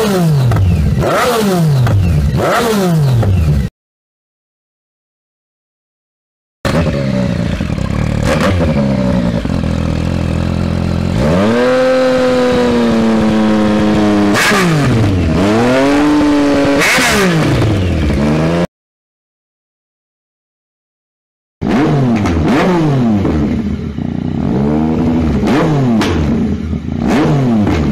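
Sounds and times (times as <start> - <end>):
motorcycle engine revving: 0.0 - 3.7, 6.7 - 18.7, 21.6 - 27.9.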